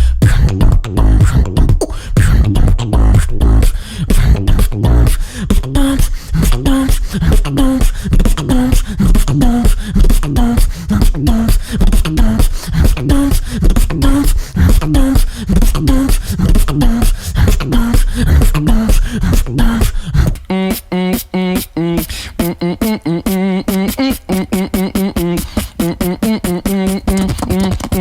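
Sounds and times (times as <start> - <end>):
beatboxing groove: 0.0 - 28.0.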